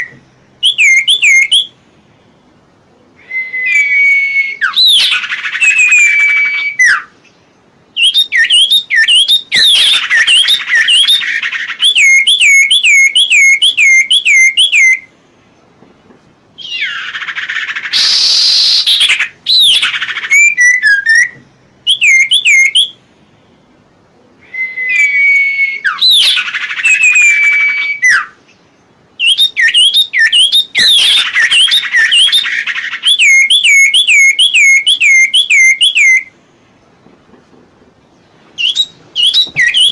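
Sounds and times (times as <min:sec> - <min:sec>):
bird whistling looping notes: 0:00.0 - 0:01.8, 0:03.1 - 0:15.1, 0:16.6 - 0:23.0, 0:24.4 - 0:28.4, 0:29.2 - 0:36.4, 0:38.6 - 0:39.9
harsh raspy bird call: 0:16.6 - 0:21.2, 0:24.8 - 0:28.4.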